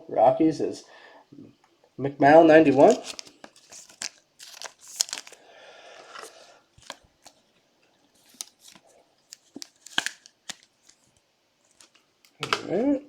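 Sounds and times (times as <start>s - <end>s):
cards rustling and sliding: 2.7s - 5.4s, 6.0s - 7.4s, 8.1s - 12.0s.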